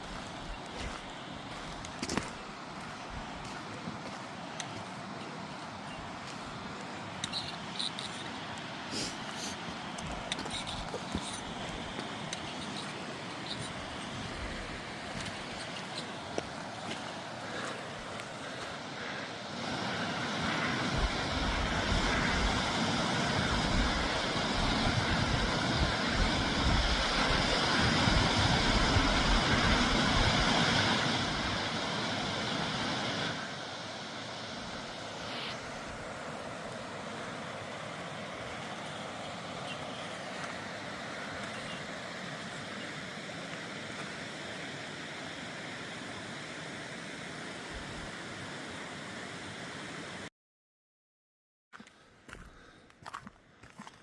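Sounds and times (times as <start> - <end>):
steady rushing hiss: 0.0 - 50.3
wind buffeting microphone: 20.8 - 31.6.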